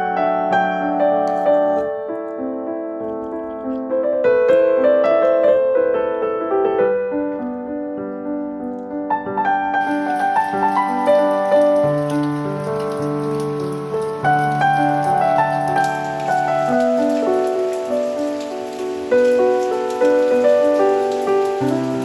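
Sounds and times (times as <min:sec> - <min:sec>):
soft piano music: 0:00.0 - 0:22.0
rain hiss: 0:09.8 - 0:22.0.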